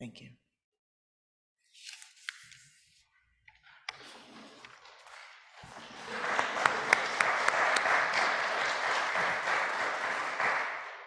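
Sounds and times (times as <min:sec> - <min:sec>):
congregation applauding: 0:03.9 - 0:11.0.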